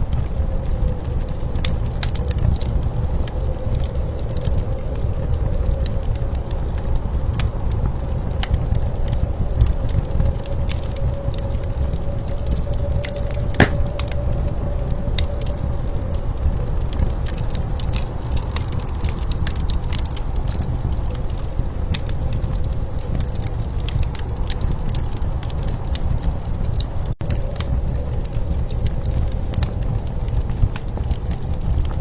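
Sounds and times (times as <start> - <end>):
wood fire crackling: 13.5 - 14.1.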